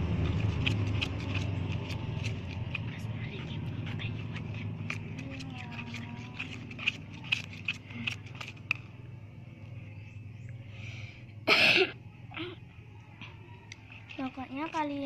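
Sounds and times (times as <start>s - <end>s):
low hum: 0.0s - 14.8s.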